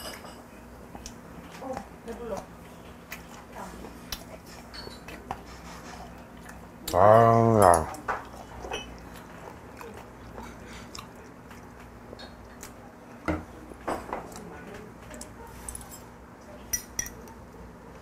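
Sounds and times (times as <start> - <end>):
close chewing: 0.9 - 7.0, 7.8 - 13.2.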